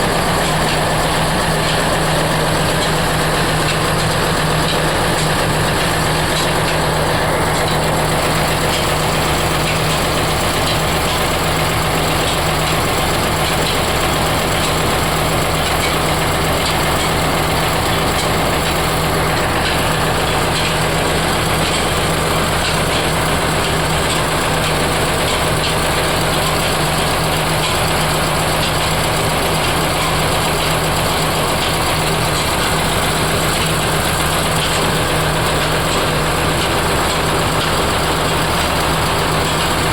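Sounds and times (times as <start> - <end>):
machinery humming and clattering: 0.0 - 39.9.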